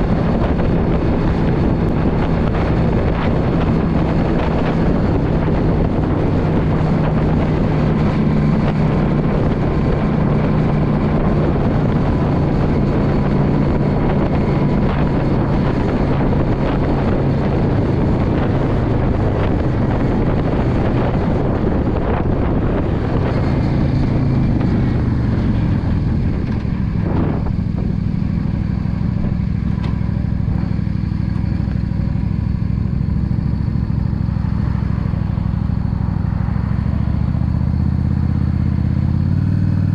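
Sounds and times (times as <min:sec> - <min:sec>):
wind rushing: 0:00.0 - 0:30.9
motorcycle engine running: 0:00.0 - 0:39.9.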